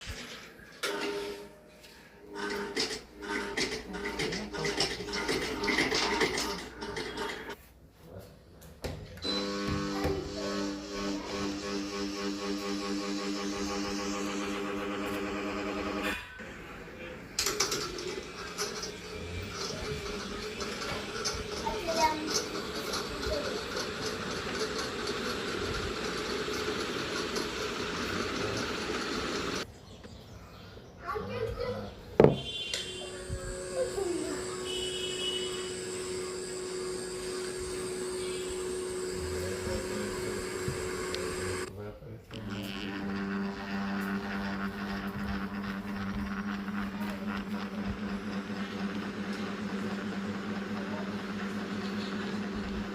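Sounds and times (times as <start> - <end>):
ceiling fan whirring: 9.2 - 29.7, 32.3 - 52.9.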